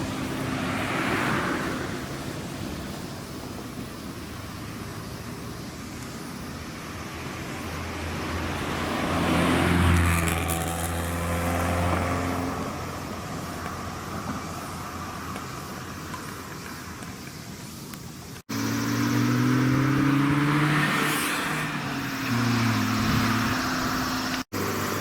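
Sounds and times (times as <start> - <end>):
car driving past: 0.0 - 2.3, 7.4 - 13.4, 18.5 - 25.0.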